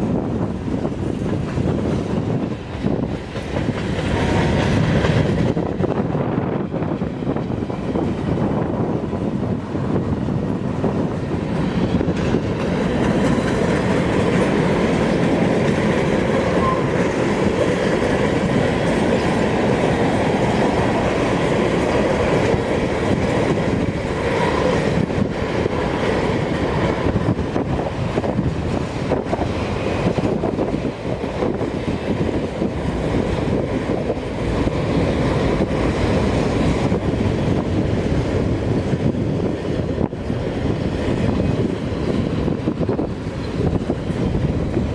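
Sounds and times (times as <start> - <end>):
train wheels rumbling on track: 0.0 - 44.9.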